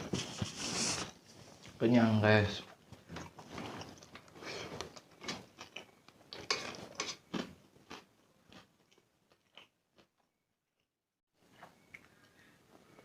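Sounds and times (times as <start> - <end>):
chewing and mouth smacks: 11.5 - 12.8.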